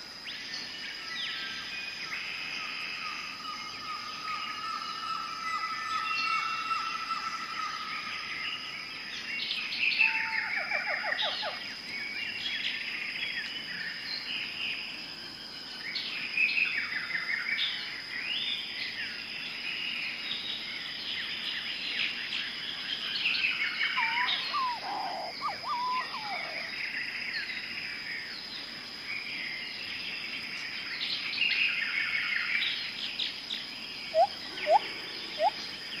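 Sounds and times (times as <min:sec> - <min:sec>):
birds chirping and trilling: 0:00.4 - 0:14.5, 0:19.9 - 0:36.0
loud rising bird calls: 0:23.8 - 0:26.8, 0:34.1 - 0:36.0.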